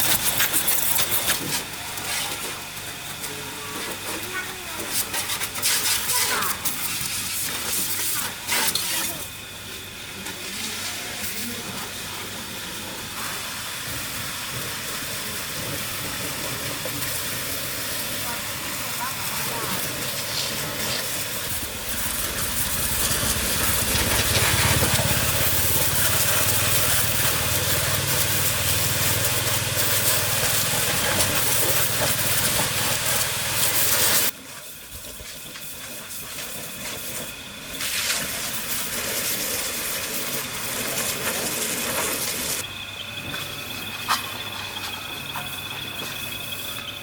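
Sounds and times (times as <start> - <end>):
broad hiss: 4.9 - 9.3, 10.5 - 42.6
farm vehicle engine running: 11.3 - 34.3, 39.2 - 47.0
faint insect chirping: 42.6 - 47.0.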